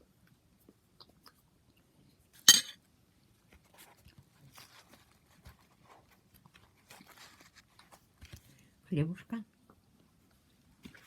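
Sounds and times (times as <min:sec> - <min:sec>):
dishes clicking and rustling: 0:02.5 - 0:02.8
tableware clink: 0:02.5 - 0:02.8.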